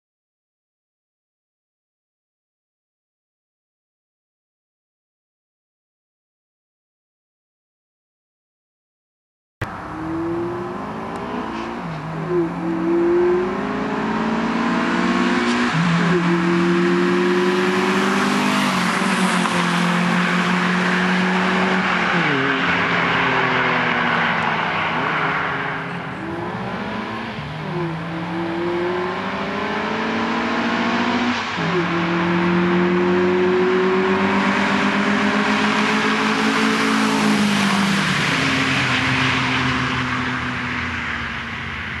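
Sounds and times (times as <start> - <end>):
car engines accelerating hard: 9.6 - 42.0.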